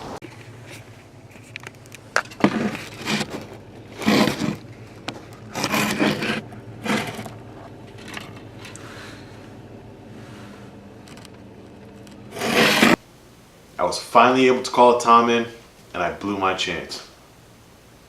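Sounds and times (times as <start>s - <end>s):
short scraping noises: 2.4s - 7.3s, 11.9s - 13.0s.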